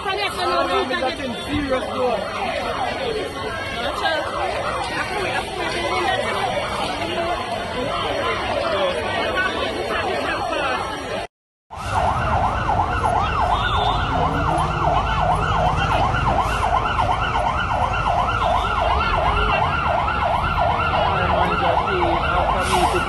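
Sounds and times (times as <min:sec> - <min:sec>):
siren yelping: 0:11.7 - 0:23.0.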